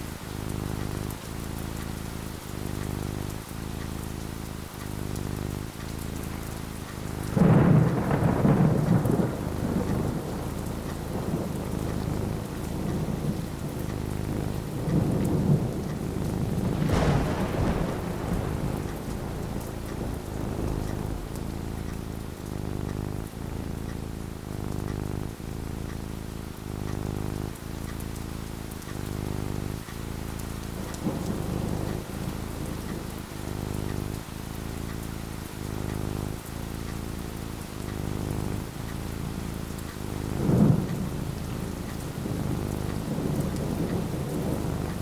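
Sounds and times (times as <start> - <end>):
steady rain: 0.0 - 45.0
thunder rumbling: 6.8 - 34.5, 37.8 - 45.0.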